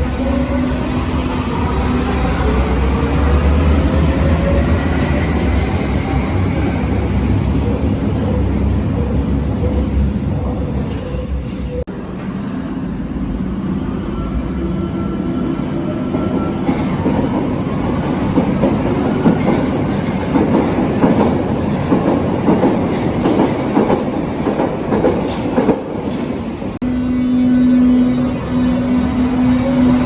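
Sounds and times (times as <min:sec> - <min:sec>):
train wheels clattering on rails: 0:16.1 - 0:26.4.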